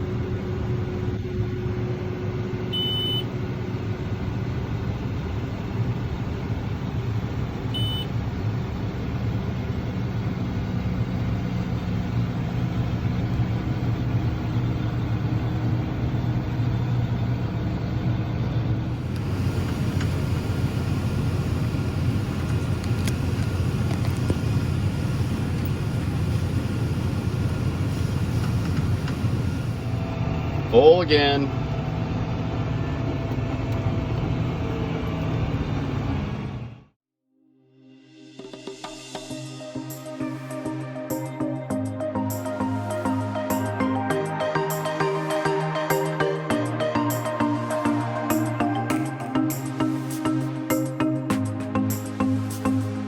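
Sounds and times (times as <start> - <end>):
combine harvester engine drone: 0.0 - 36.9, 39.5 - 53.0
short high beeps: 2.8 - 3.3, 7.8 - 8.1
high hiss: 19.0 - 30.0.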